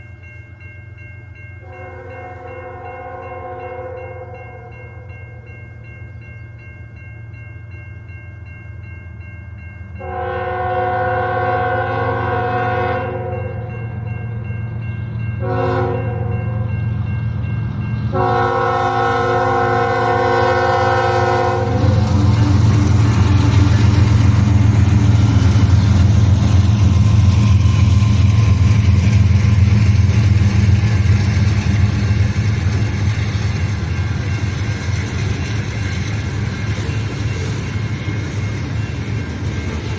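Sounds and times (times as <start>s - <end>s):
locomotive horn blasts: 1.6s - 5.0s, 10.0s - 13.8s, 15.4s - 16.7s, 18.1s - 22.7s
locomotive engine rumbling: 9.8s - 39.9s.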